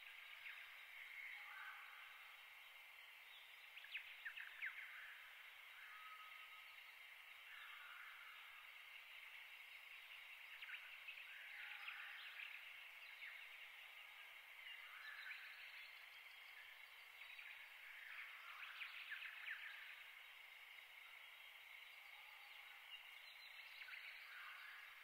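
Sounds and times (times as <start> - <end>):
steady soft hiss: 0.0 - 25.0.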